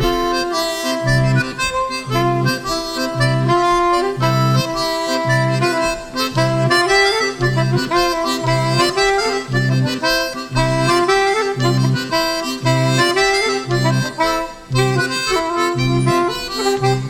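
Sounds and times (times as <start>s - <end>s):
folk band playing dance tune: 0.0s - 17.0s
low bass chords: 0.0s - 17.0s
reedy melody: 0.0s - 17.0s.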